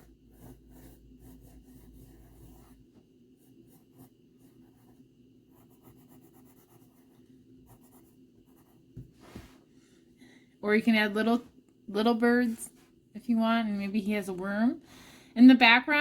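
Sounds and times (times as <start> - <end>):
pencil scratching on paper: 0.0 - 9.1.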